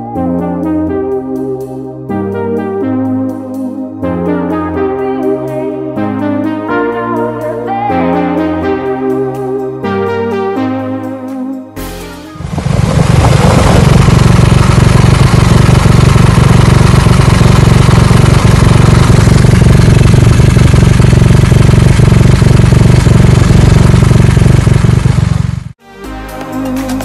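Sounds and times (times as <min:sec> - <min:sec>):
motorcycle engine idling: 0:12.4 - 0:25.8.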